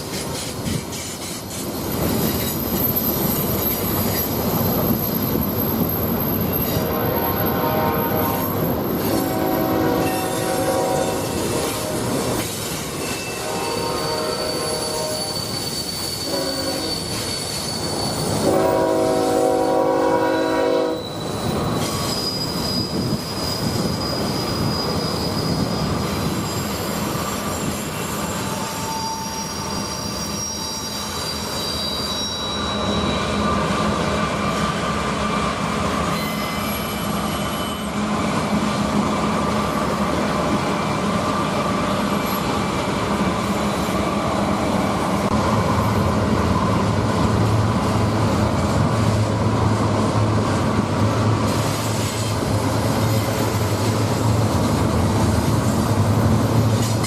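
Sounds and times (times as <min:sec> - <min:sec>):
steel wheels squealing: 0:00.0 - 0:18.6, 0:20.3 - 0:34.2, 0:36.0 - 0:38.1, 0:41.5 - 0:42.6, 0:51.5 - 0:57.0
train rumbling: 0:00.0 - 0:57.0
locomotive horn: 0:06.7 - 0:12.2, 0:13.3 - 0:15.4, 0:16.2 - 0:17.0, 0:18.4 - 0:21.1.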